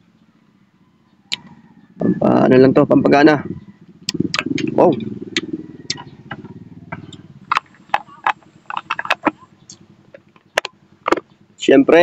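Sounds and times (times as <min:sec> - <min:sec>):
low droning hum: 0:03.4 - 0:11.6.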